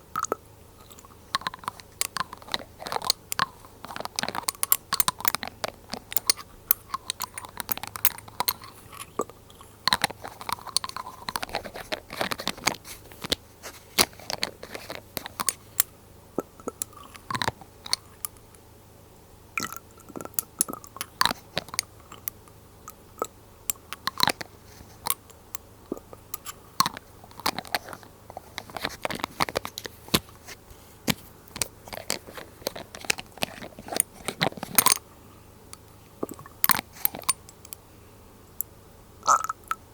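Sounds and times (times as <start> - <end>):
glass dropper bottles clicking: 0.2 - 13.4, 14.0 - 18.4, 23.2 - 25.2, 31.5 - 35.0, 36.2 - 37.8, 39.3 - 39.8.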